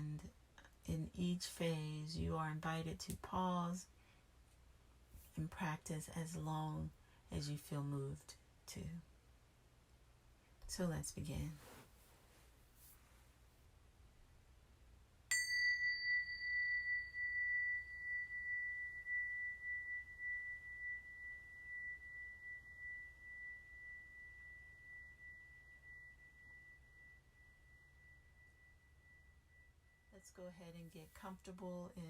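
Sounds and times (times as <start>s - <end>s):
meditation bell ringing: 15.3s - 30.6s.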